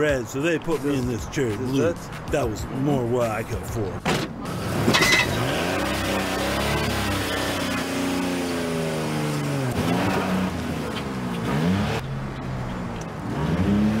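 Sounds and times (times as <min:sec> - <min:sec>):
car engine revving: 0:04.0 - 0:14.0.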